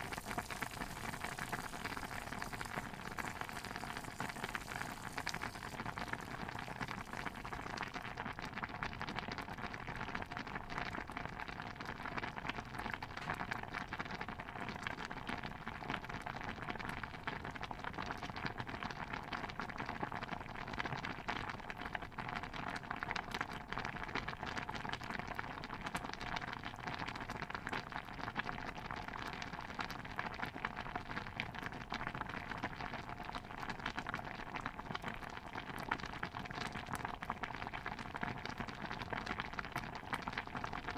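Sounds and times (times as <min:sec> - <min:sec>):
stew bubbling: 0:00.0 - 0:10.2.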